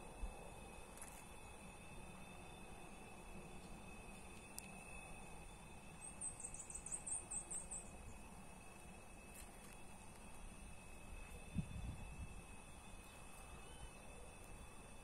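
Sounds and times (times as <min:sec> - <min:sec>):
faint high tone: 0:13.3 - 0:14.0.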